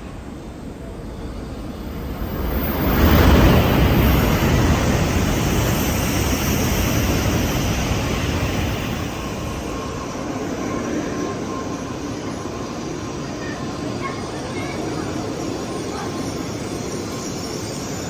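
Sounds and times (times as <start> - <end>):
train rushing and rolling: 0.0 - 18.0
faint steady high tone: 9.1 - 18.0.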